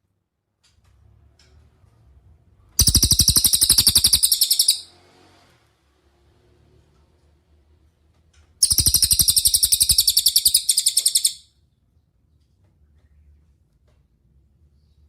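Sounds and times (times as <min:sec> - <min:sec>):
songbird high-pitched trill: 0:02.8 - 0:04.9, 0:08.6 - 0:11.5.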